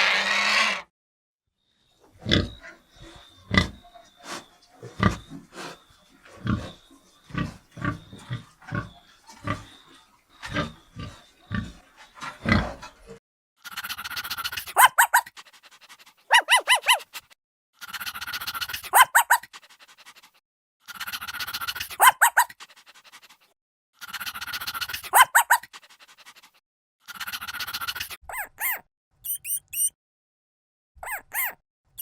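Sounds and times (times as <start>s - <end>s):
animal giving short high calls: 0.0s - 0.9s, 16.3s - 17.1s, 31.0s - 31.6s
pig grunting: 0.0s - 0.9s, 2.2s - 9.8s, 10.4s - 13.0s.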